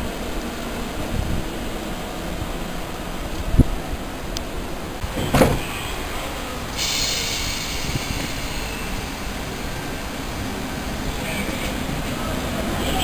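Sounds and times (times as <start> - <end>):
thump: 5.2 - 5.7
electric train high whine: 5.9 - 13.0.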